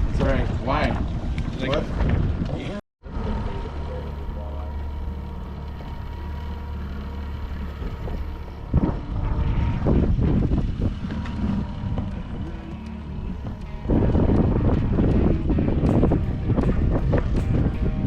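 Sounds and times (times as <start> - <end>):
wind buffeting microphone: 0.0 - 2.8, 7.6 - 18.0
boat motor humming: 0.0 - 18.0.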